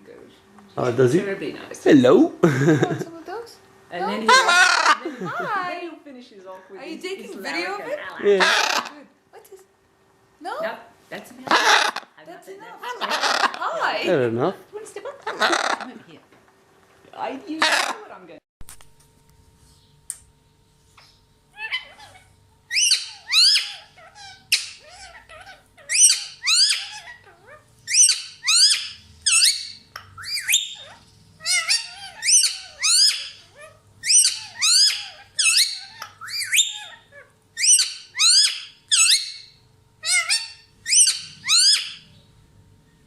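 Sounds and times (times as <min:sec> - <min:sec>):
parrot squawking: 0:04.0 - 0:05.8, 0:07.4 - 0:09.1, 0:11.4 - 0:12.2, 0:12.8 - 0:14.1, 0:15.2 - 0:16.2, 0:17.4 - 0:18.2, 0:21.5 - 0:42.2.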